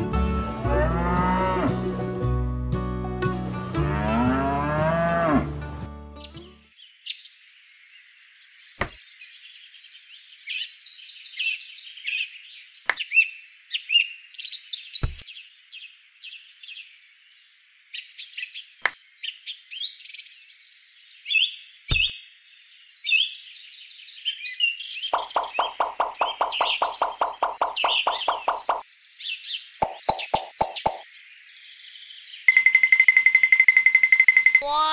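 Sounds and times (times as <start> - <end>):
small birds chirping: 6.2 - 33.6.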